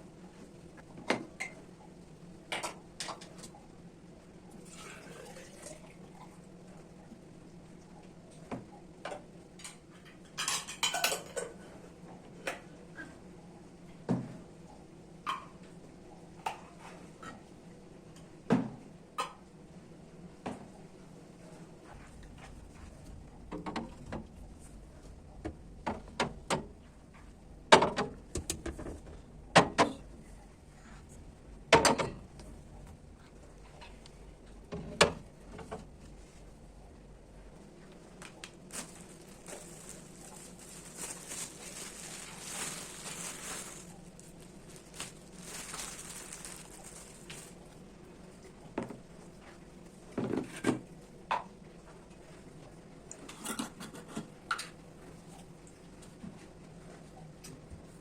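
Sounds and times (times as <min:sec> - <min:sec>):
soft rustling: 0:37.6 - 0:47.8.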